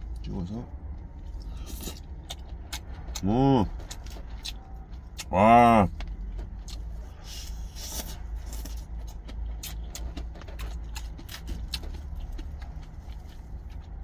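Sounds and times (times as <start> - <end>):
steady low rumble: 0.0 - 14.0
chewing crisp salad: 1.2 - 5.3, 6.1 - 14.0
person exclaiming in delight: 5.3 - 5.9.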